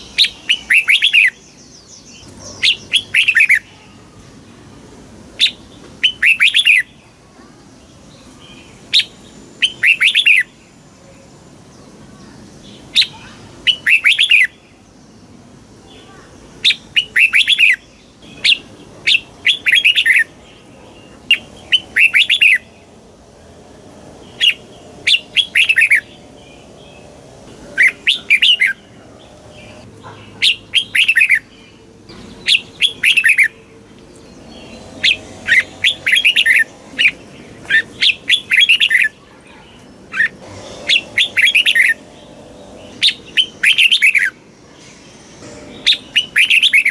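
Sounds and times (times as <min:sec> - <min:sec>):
bird singing whistled notes: 0:00.0 - 0:03.6, 0:05.4 - 0:06.9, 0:08.2 - 0:10.6, 0:12.9 - 0:14.6, 0:16.6 - 0:23.0, 0:24.2 - 0:27.2, 0:27.8 - 0:33.6, 0:34.2 - 0:39.2, 0:40.1 - 0:44.4, 0:45.1 - 0:46.9.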